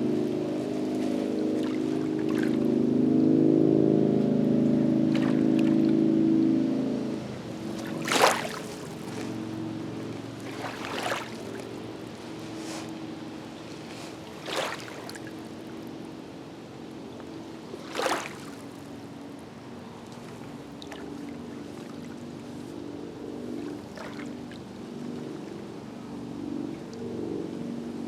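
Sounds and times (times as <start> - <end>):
small waves splashing on rocks: 7.7 - 9.3, 10.4 - 11.6, 13.8 - 15.3, 17.8 - 18.9.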